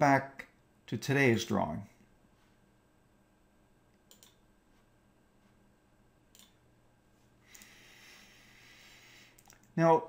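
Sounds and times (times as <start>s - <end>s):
faint computer mouse clicks: 4.0s - 4.4s, 6.3s - 6.6s, 7.5s - 7.8s, 9.3s - 9.7s.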